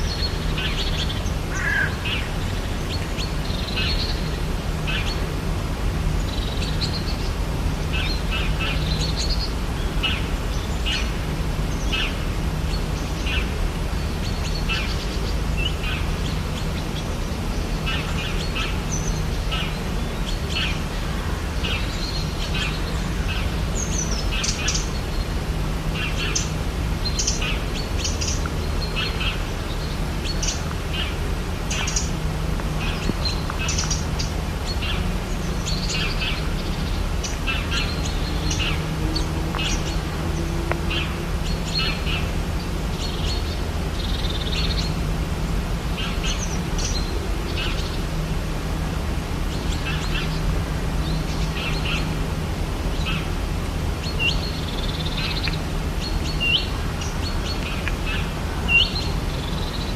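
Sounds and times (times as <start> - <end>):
low background hiss and hum: 0.0 - 59.9.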